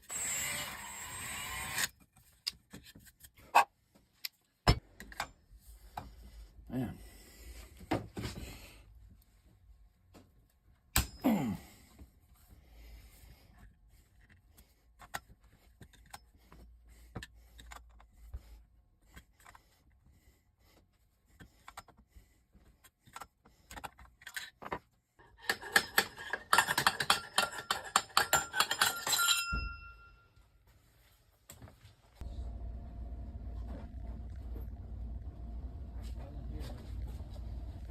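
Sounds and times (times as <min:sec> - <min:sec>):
metal objects clicking and tapping: 0:25.2 - 0:30.0
metallic clinking and rattling: 0:25.4 - 0:30.1.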